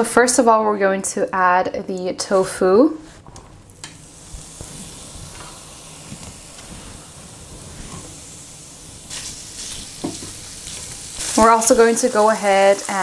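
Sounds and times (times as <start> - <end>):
tofu sizzling in hot oil: 3.7 - 13.0.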